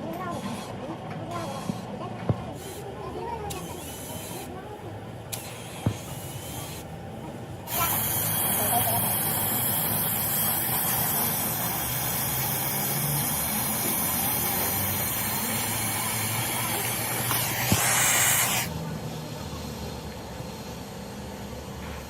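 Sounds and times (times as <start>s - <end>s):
compressed air spraying hiss: 7.7s - 18.7s.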